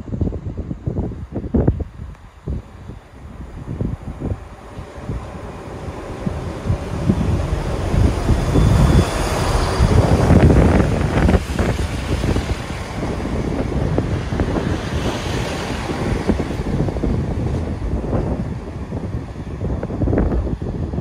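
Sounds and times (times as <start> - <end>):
diesel train pulling in: 0.0 - 21.0
wind buffeting the microphone: 0.0 - 21.0.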